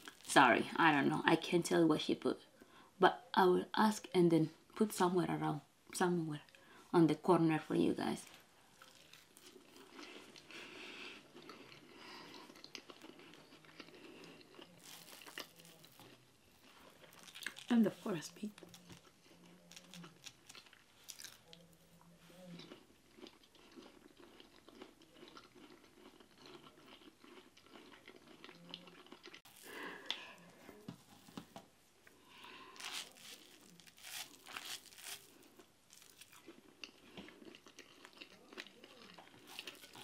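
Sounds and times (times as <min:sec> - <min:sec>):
chewing and mouth smacks: 0:08.8 - 0:16.2, 0:16.9 - 0:17.7, 0:35.9 - 0:40.0.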